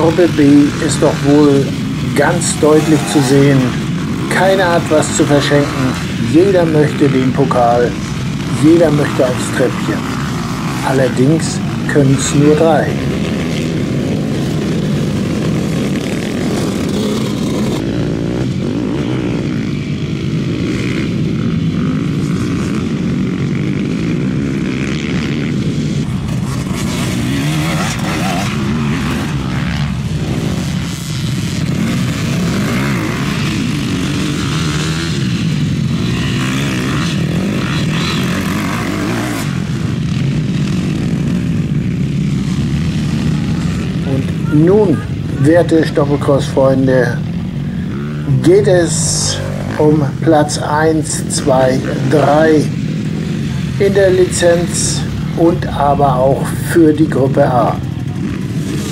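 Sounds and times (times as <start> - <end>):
motocross engines racing: 0.0 - 58.9.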